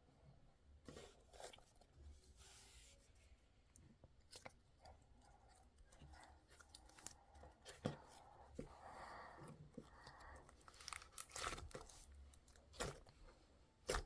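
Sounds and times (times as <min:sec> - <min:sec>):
packaging rustle: 0:10.5 - 0:13.2.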